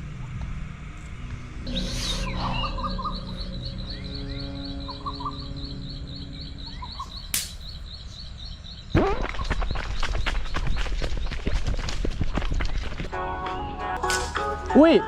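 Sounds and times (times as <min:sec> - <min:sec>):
lower bird chirping calls: 0:01.7 - 0:09.0
bird rapid high chirps: 0:01.7 - 0:09.9
sharp click: 0:07.3 - 0:07.7.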